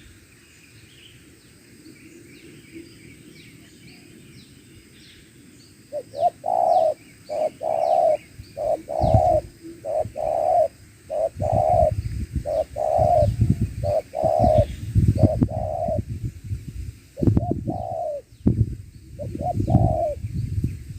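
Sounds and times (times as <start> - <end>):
dove cooing: 5.9 - 16.0, 17.2 - 18.3, 19.2 - 20.2.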